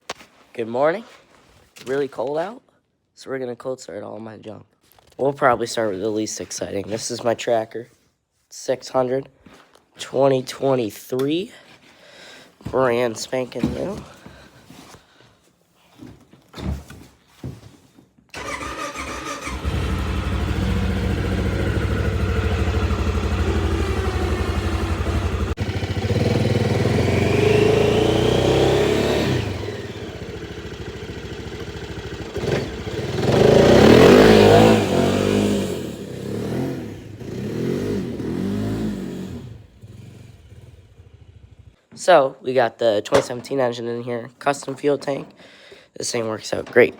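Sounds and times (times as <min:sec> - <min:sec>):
engine starting and revving: 0:18.4 - 0:41.7.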